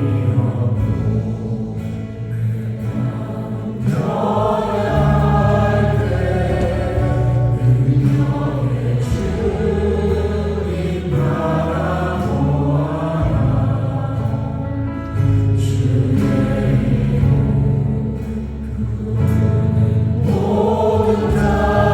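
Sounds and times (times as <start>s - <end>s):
group singing: 0.0s - 21.9s
worship band playing: 0.0s - 21.9s.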